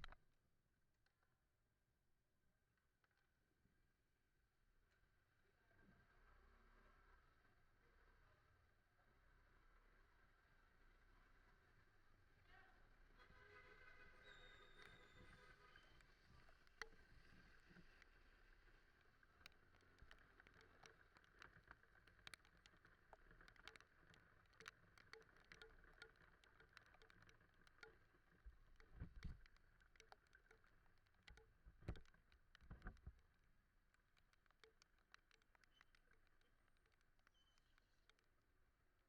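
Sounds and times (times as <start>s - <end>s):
faint steady drone: 8.0s - 39.0s
sharp ticks on camera: 14.7s - 38.6s.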